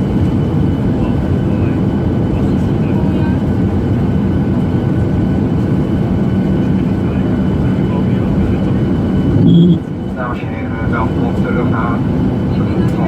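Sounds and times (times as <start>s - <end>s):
jet engine rumble in cabin: 0.0s - 13.0s.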